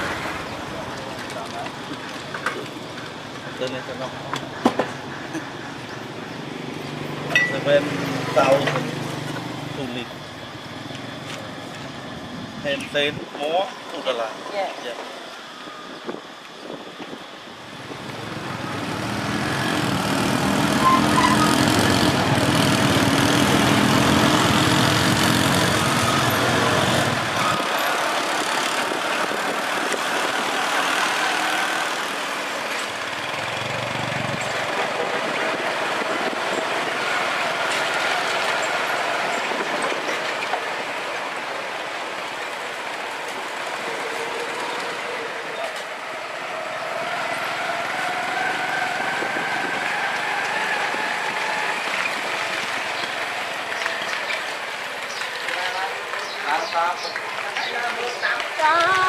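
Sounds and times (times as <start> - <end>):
road traffic noise: 0.0 - 59.0
vehicle engine rumbling past: 17.7 - 39.9.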